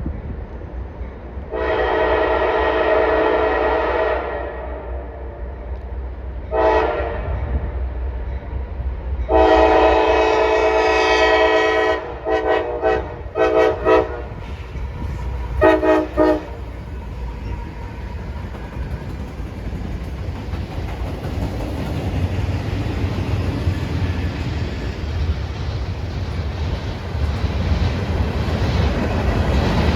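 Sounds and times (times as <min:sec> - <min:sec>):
locomotive air horn blasts: 0:01.5 - 0:05.0, 0:06.5 - 0:07.4, 0:09.3 - 0:14.4, 0:15.6 - 0:16.7
locomotive low rumble: 0:13.0 - 0:29.9.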